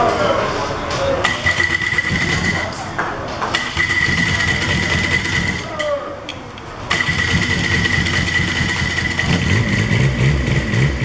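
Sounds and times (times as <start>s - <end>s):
diesel engine running: 1.3s - 2.8s, 3.6s - 5.7s, 6.9s - 11.0s.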